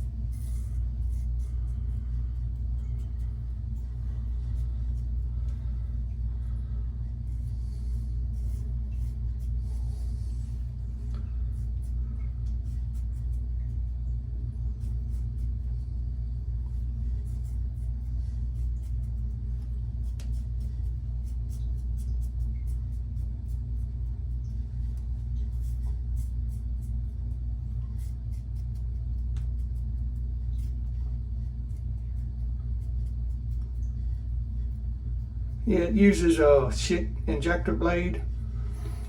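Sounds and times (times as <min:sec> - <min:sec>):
razor scraping stubble: 0:00.0 - 0:06.0
low rumble: 0:00.0 - 0:39.0.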